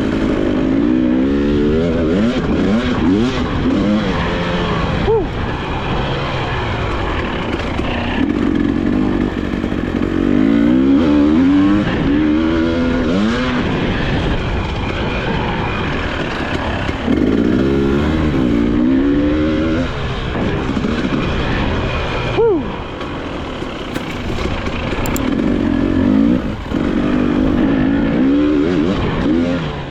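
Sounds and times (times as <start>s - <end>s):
two-stroke motorcycle engine revving: 0.0s - 29.9s.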